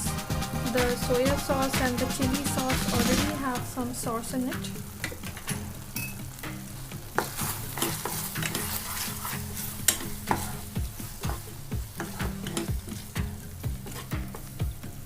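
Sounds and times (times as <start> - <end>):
vegetables sizzling: 0.0 - 15.0
spatula scraping a pan: 7.1 - 14.6.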